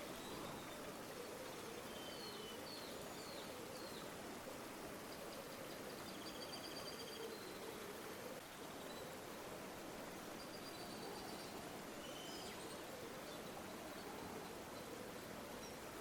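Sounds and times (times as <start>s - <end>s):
river water flowing: 0.0s - 6.4s, 7.4s - 16.0s
faint bird chirps: 0.1s - 4.1s, 5.1s - 7.8s, 10.4s - 15.9s.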